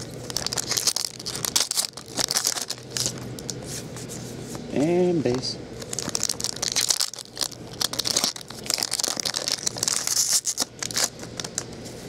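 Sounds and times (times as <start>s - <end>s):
foil wrapper crinkling and tearing: 0.0s - 3.6s, 5.8s - 11.7s.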